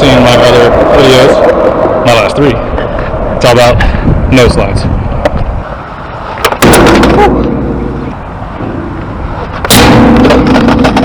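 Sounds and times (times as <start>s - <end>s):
skateboard wheels rolling on concrete: 0.0s - 11.0s
skateboard clack: 6.3s - 11.0s.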